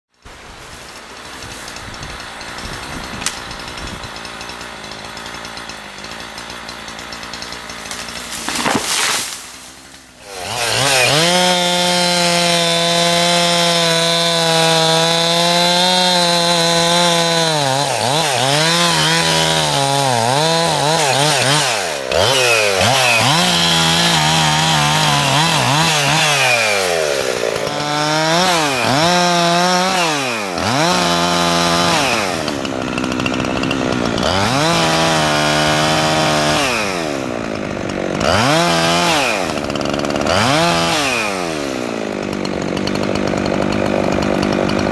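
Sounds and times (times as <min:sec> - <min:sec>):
chainsaw cutting wood: 0:00.1 - 0:44.9.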